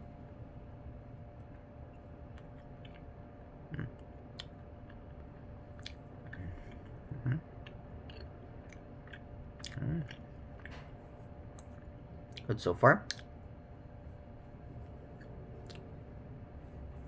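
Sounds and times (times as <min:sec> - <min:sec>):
person chewing: 0:02.3 - 0:03.1, 0:03.7 - 0:10.9, 0:15.0 - 0:15.9.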